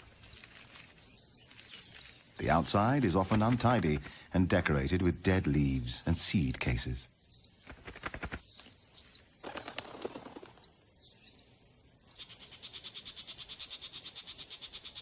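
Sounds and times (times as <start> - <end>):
bird trill: 5.9 - 15.0.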